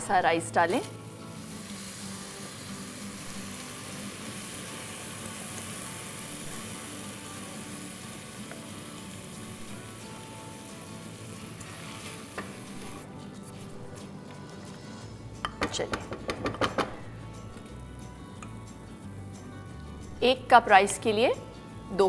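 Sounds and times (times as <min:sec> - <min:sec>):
rice sizzling in hot oil: 0:00.6 - 0:13.0.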